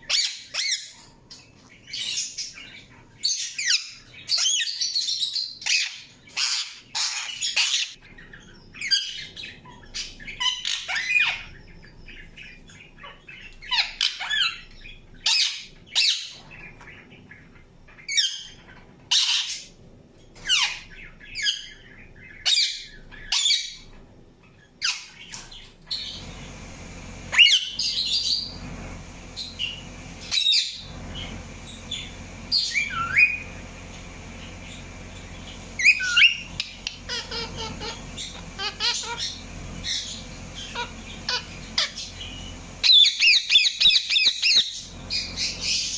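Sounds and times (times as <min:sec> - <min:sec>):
parakeet chirping and squawking: 0:00.0 - 0:19.8, 0:20.4 - 0:45.9
steady low hum: 0:19.6 - 0:45.9.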